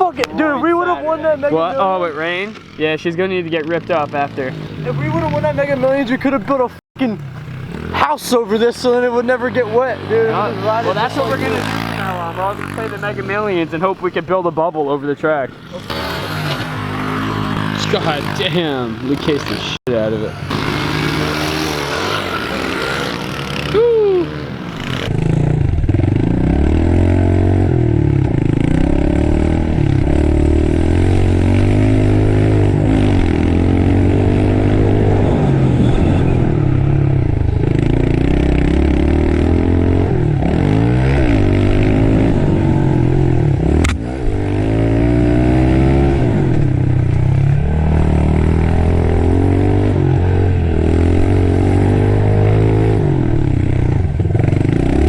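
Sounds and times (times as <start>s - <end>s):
small motorbike engine revving: 7.3s - 13.7s, 15.6s - 55.0s
sharp click: 43.8s - 44.0s.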